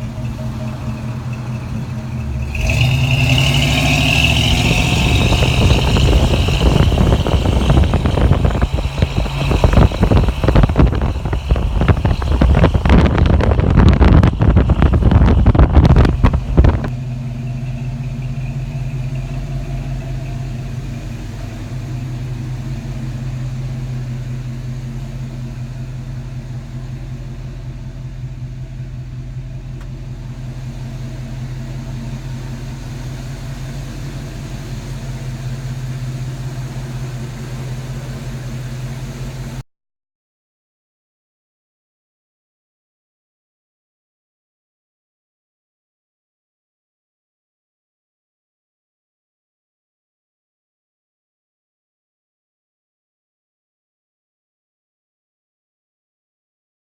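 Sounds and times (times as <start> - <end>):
car engine idling: 0.0 - 39.6
wind noise on microphone: 4.2 - 17.0.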